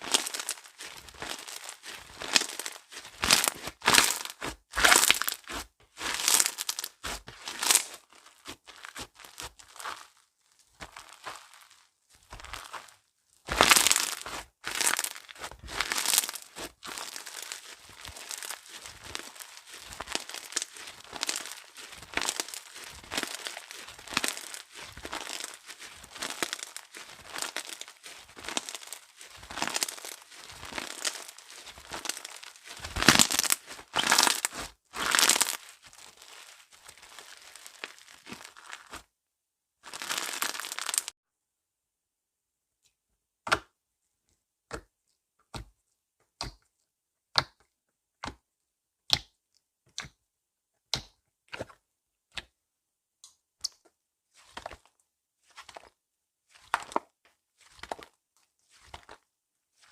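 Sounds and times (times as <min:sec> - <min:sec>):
slime squishing by hand: 0:00.0 - 0:39.0, 0:39.8 - 0:41.1.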